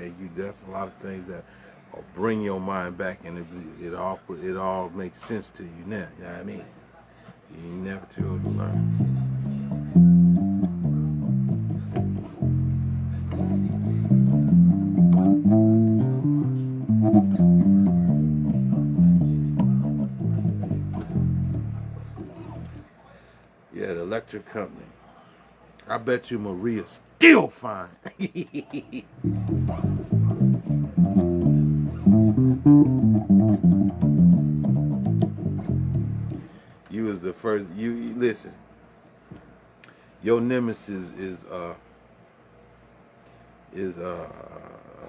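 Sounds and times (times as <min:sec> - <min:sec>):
bass guitar melody: 0:08.2 - 0:22.9, 0:29.2 - 0:36.5
fret and string clicks: 0:08.3 - 0:22.8, 0:29.3 - 0:36.4.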